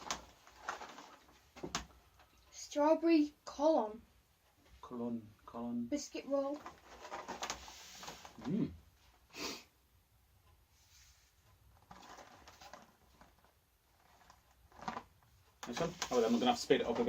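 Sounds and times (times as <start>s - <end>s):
person humming mmm: 8.4s - 8.8s.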